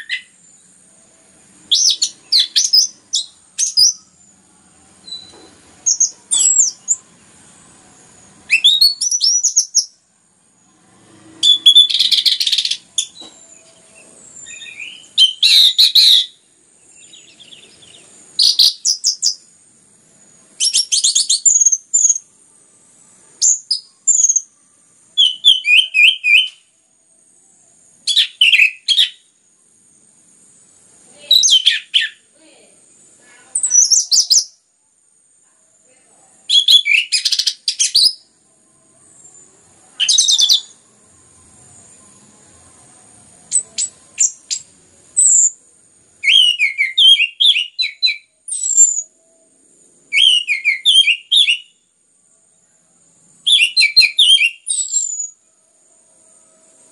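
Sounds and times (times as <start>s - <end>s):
thrush singing whistles and chirps: 0.0s - 10.1s, 11.2s - 19.6s, 20.2s - 26.8s, 27.7s - 29.4s, 31.2s - 32.3s, 33.6s - 34.7s, 36.4s - 38.4s, 39.1s - 40.8s, 43.5s - 51.9s, 53.4s - 55.5s
faint high-pitched tone: 3.0s - 8.6s, 12.9s - 15.2s, 22.2s - 25.2s, 38.2s - 45.7s, 48.3s - 50.0s, 55.3s - 56.9s.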